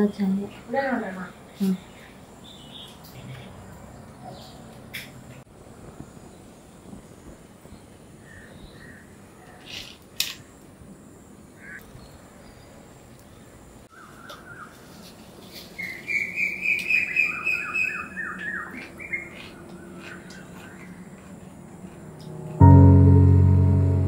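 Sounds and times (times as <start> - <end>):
birds chirping: 15.8 - 22.5.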